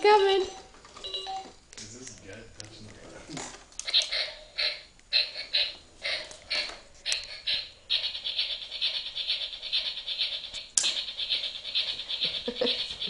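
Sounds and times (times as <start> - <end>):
toy train rattling: 3.8 - 13.0.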